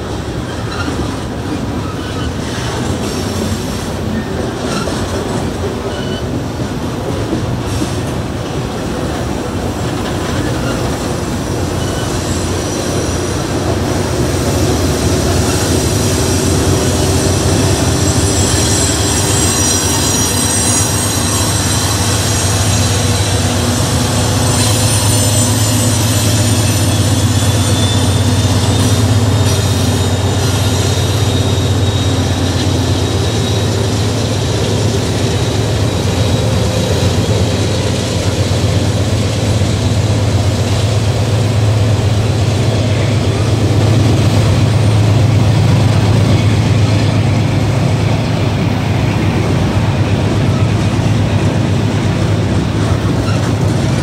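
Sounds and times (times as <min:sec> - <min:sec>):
diesel locomotive passing: 0:00.0 - 0:54.0
train wheels rumbling on rail: 0:00.0 - 0:54.0
high wheel squeal: 0:00.3 - 0:06.5, 0:09.4 - 0:54.0.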